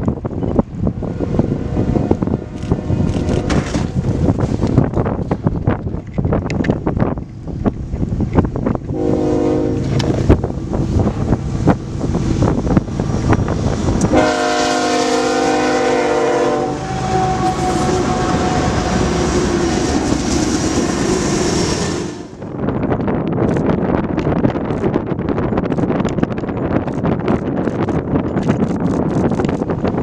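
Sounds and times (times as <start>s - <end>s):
passing train rumble: 0.0s - 30.0s
locomotive air horn blasts: 8.9s - 10.2s, 14.1s - 22.4s.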